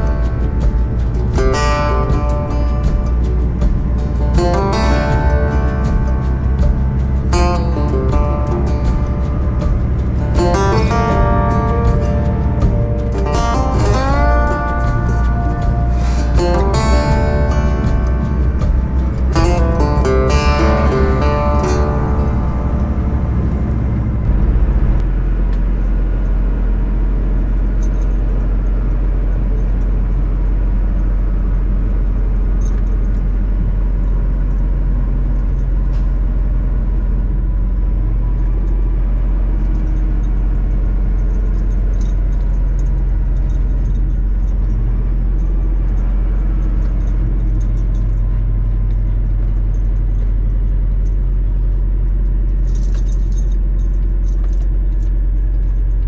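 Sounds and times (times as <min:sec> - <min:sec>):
truck engine drone: 0:00.0 - 0:28.9
road noise: 0:00.0 - 0:55.8
faint rattles and ticks: 0:00.0 - 0:56.0.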